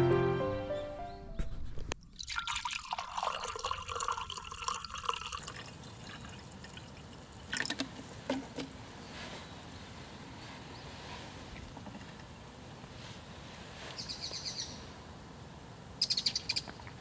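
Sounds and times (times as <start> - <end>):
liquid pouring into container: 2.2 - 8.0.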